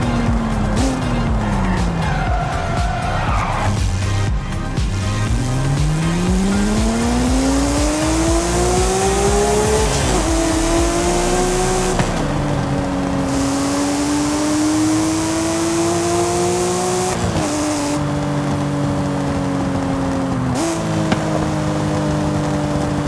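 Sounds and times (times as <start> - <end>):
car engine accelerating with upshifts: 0.0 - 23.0.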